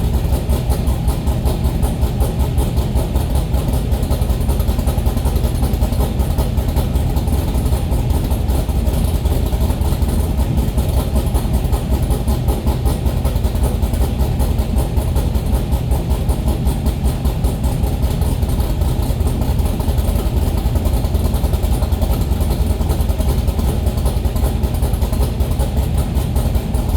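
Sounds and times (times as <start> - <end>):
engine idling: 0.0 - 26.9.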